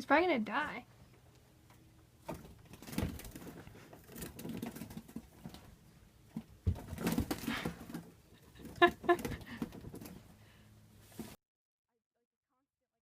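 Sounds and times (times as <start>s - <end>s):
bird fluttering and scrabbling: 2.2s - 10.3s.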